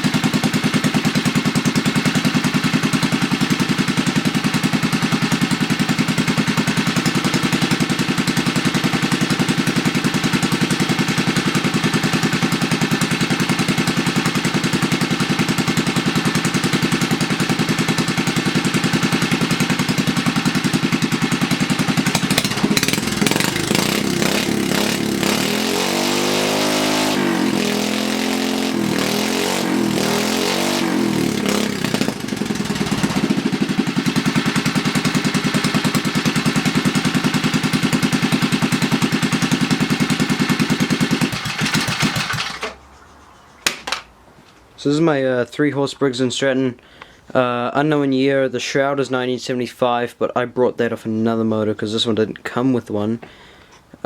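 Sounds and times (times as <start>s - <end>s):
small engine idling and revving: 0.0s - 43.0s.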